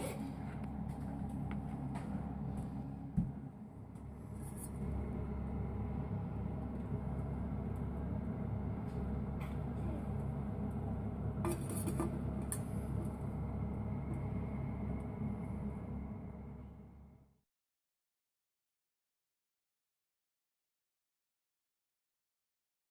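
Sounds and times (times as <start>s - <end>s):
low background rumble: 0.0s - 17.4s.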